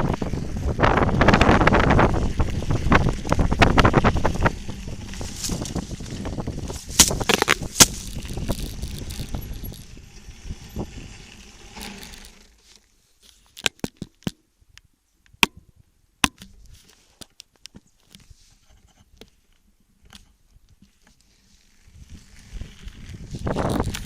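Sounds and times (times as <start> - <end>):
wind buffeting microphone: 0.0 - 11.8, 21.9 - 24.0
sharp clicks and crunches: 2.4 - 9.9, 11.3 - 15.6, 16.2 - 24.0.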